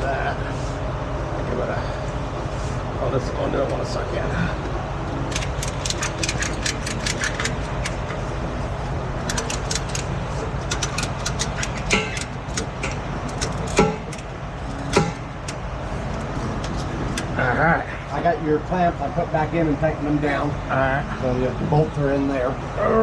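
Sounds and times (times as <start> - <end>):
truck engine idling: 3.8 - 18.1
clicks and rattles: 5.3 - 8.2, 9.2 - 17.4.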